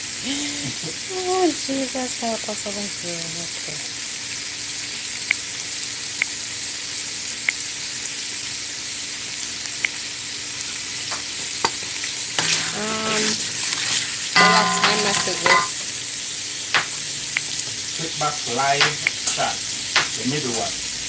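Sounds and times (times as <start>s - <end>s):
chicken sizzling in pot: 0.0s - 21.0s
person speaking: 14.4s - 15.8s.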